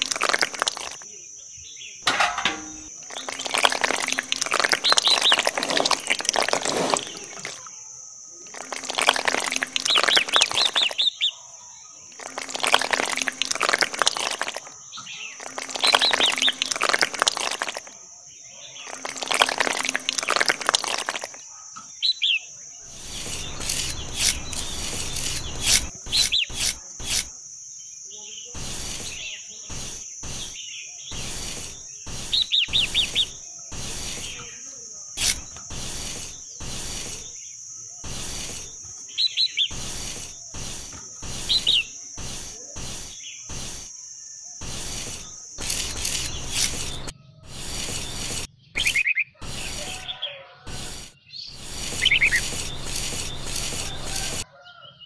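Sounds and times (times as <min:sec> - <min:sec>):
palette knife scraping concrete: 0:02.1 - 0:07.7, 0:22.9 - 0:27.4, 0:35.2 - 0:37.3, 0:44.6 - 0:50.1, 0:50.7 - 0:54.4
short bird chirps: 0:02.6 - 0:11.4, 0:12.0 - 0:17.8, 0:18.6 - 0:27.3, 0:28.1 - 0:54.4.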